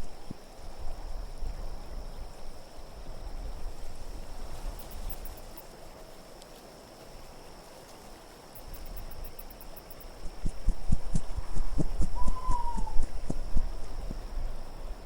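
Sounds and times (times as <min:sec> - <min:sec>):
low wind rumble: 0:08.7 - 0:15.0.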